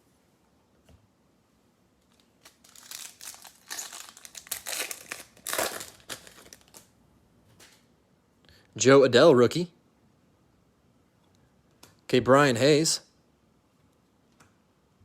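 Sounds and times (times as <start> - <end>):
foil wrapper crinkling: 2.1 - 6.9.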